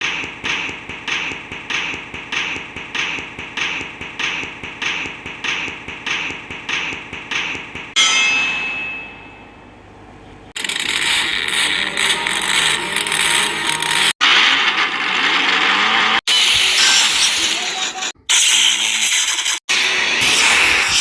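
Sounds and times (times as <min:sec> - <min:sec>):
clanging hits: 0:00.0 - 0:09.6
loud ringing clang: 0:08.0 - 0:09.9.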